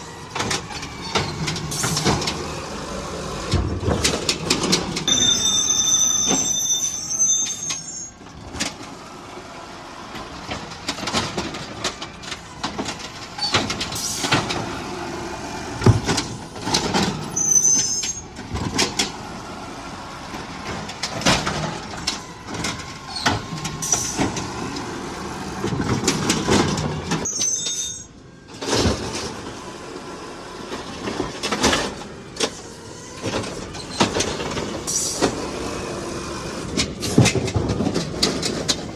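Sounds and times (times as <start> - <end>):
garbage truck engine running: 0.0 - 38.9
short high-pitched squeals: 5.0 - 8.2, 17.2 - 18.3, 27.3 - 28.2
clanks and bangs: 36.7 - 38.9.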